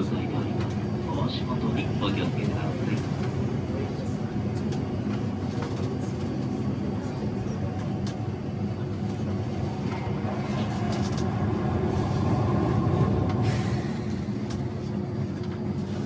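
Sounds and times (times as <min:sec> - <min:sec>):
train wheels and motors rumbling: 0:00.0 - 0:16.0.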